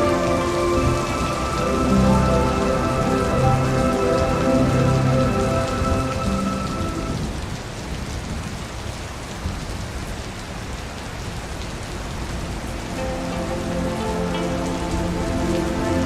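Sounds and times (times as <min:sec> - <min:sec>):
sustained musical tones: 0:00.0 - 0:07.2, 0:12.4 - 0:16.0
rain falling into a puddle: 0:00.0 - 0:16.0.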